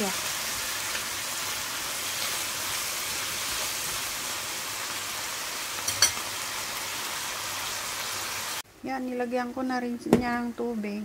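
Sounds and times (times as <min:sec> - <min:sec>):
food sizzling in hot oil: 0:00.0 - 0:08.6.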